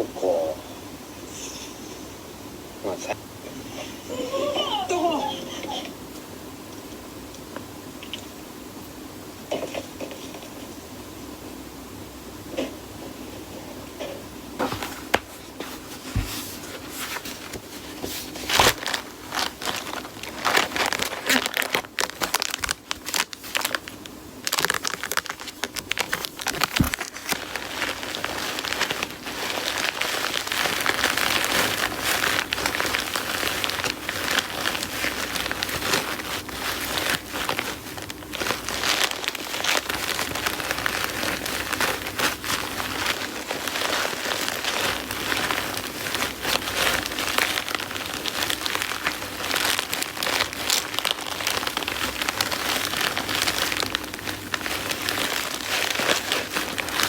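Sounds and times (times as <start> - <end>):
crinkling and crackling: 12.6 - 57.0.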